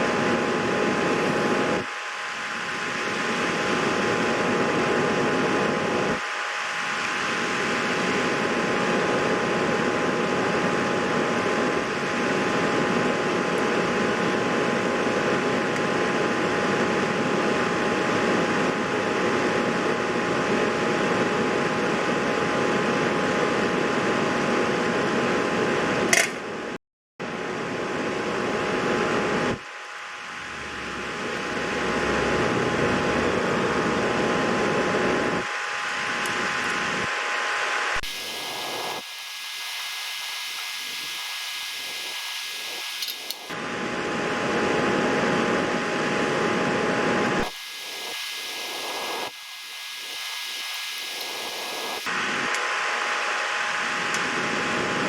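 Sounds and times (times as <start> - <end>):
fan whirring hum: 0.0 - 26.1
faint steady tones: 38.0 - 43.6, 47.4 - 52.1
click: 42.8 - 43.5.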